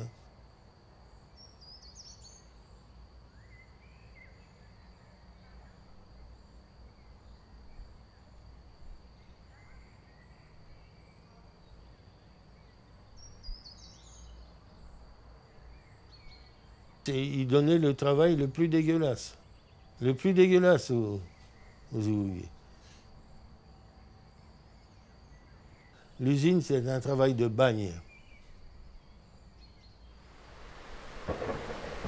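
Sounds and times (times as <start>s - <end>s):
bird chirps: 12.6s - 14.6s.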